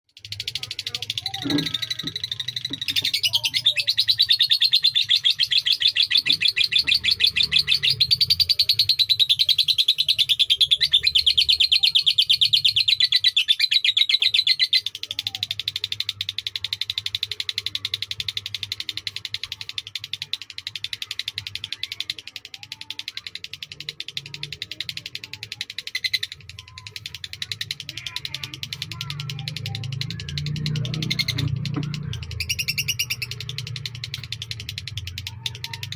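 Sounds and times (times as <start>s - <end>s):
lovebird trilling: 0.3s - 14.8s, 25.2s - 35.9s.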